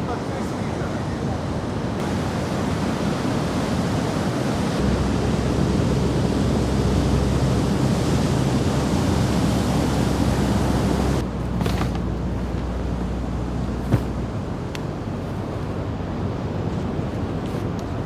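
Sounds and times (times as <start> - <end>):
surf rushing: 0.0 - 11.2
wind: 0.0 - 18.0
low steady rumble: 4.8 - 18.0.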